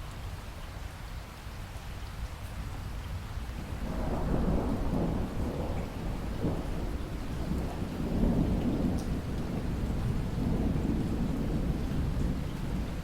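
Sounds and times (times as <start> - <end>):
heavy rain: 0.0 - 13.0
low rumble of thunder: 2.9 - 13.0.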